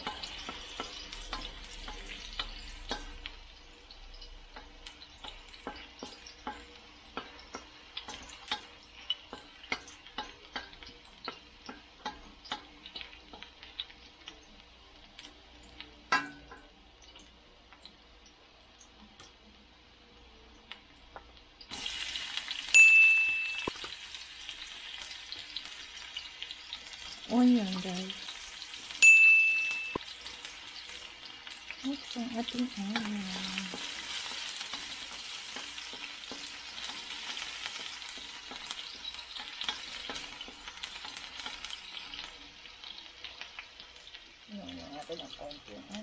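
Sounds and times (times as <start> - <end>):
oil popping and crackling: 0.0 - 19.4, 29.9 - 46.0
ginger frying in oil: 0.0 - 46.0
onion sizzling in hot oil: 0.0 - 46.0.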